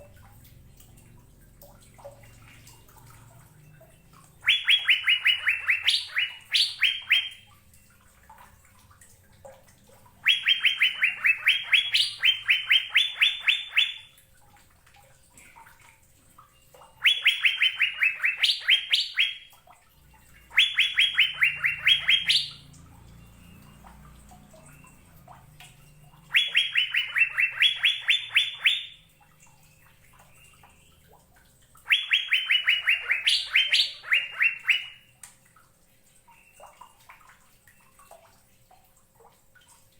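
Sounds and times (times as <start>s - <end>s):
bird whistling song: 3.9s - 7.5s, 10.2s - 14.2s, 16.6s - 19.5s, 20.4s - 31.0s, 31.8s - 35.1s.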